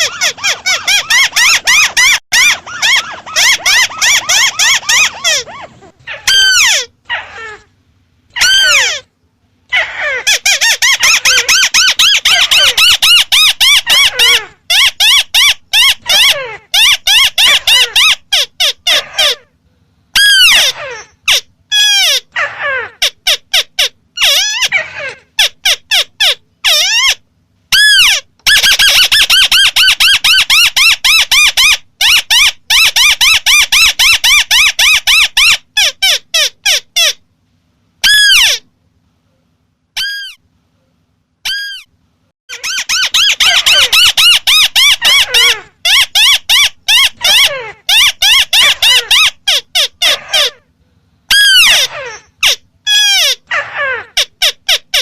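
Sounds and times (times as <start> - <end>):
bird chattering call: 0.0 - 6.9.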